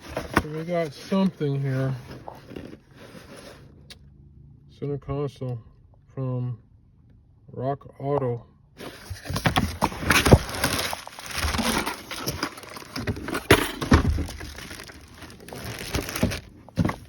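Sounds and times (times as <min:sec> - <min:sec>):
packaging crinkling and rustling: 0:00.0 - 0:03.7, 0:08.8 - 0:17.0.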